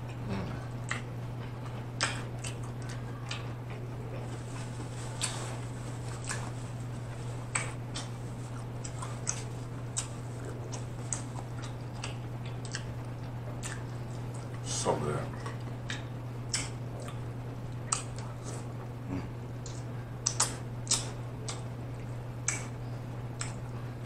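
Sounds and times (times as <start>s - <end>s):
low electrical hum: 0.0s - 24.0s
wet chewing mouth clicks: 0.1s - 4.3s, 6.2s - 6.6s, 7.5s - 14.6s, 15.3s - 18.6s, 19.6s - 21.7s, 22.4s - 22.8s.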